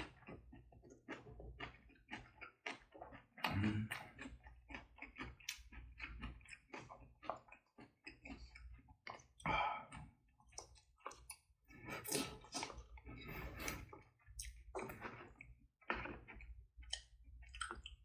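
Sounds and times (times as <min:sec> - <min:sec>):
person chewing food: 0:00.0 - 0:18.0
wet mouth clicks and smacks: 0:16.8 - 0:18.0.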